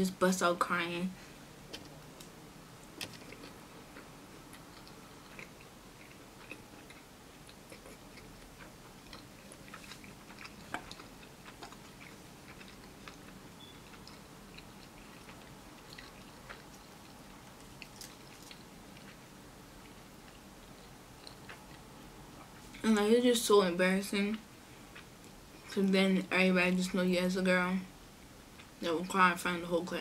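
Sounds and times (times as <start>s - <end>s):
quiet chewing: 1.7s - 22.8s, 24.2s - 25.8s.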